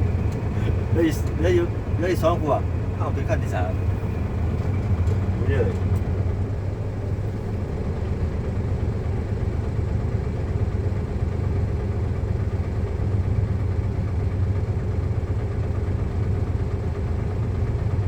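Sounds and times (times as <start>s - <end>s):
diesel truck engine humming: 0.0s - 18.0s.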